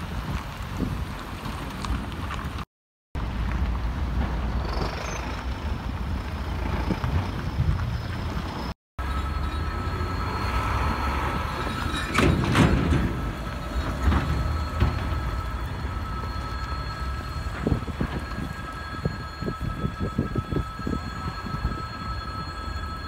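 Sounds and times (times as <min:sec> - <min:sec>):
train rumbling: 0:03.2 - 0:23.0
steady high-pitched tones: 0:04.6 - 0:23.0.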